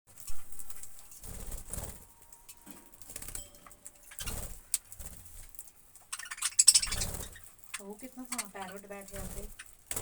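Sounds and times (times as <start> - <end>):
budgerigars calling softly: 6.1 - 8.8.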